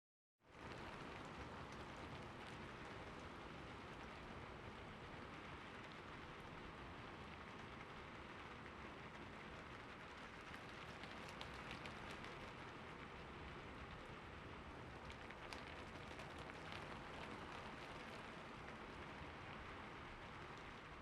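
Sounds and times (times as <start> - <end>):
steady rain: 0.5 - 21.0
raindrops ticking: 10.0 - 14.1, 14.7 - 20.8.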